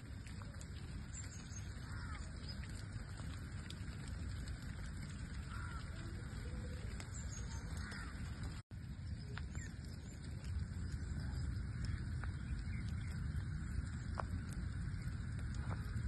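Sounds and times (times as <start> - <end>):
steady rain falling: 0.0 - 16.0
faint bird chirps: 5.5 - 8.1.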